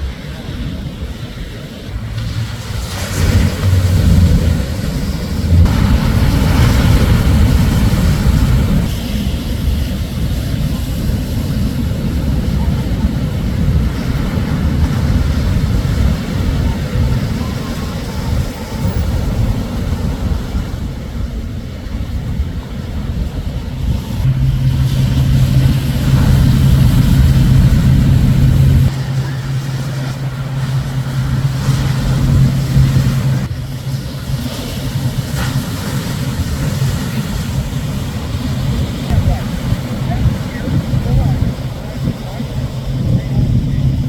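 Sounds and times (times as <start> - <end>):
waves crashing on beach: 0.0 - 44.0
wind buffeting microphone: 0.0 - 44.0
steady low hum: 23.7 - 44.0.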